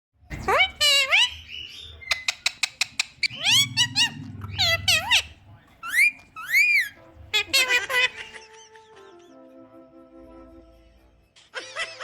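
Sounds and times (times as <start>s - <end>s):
cockatiel whistling: 1.2s - 7.7s.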